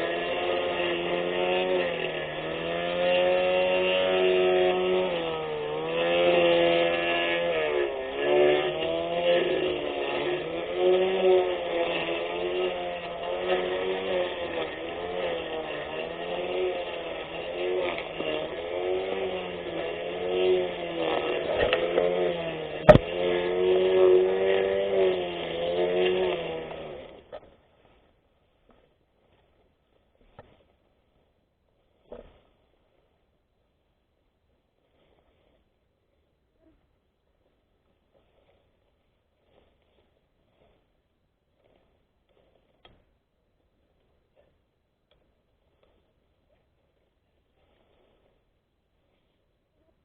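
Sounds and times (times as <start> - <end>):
electric grass cutter motor whining: 0.0 - 27.5
electric lawn mower running: 0.0 - 27.5.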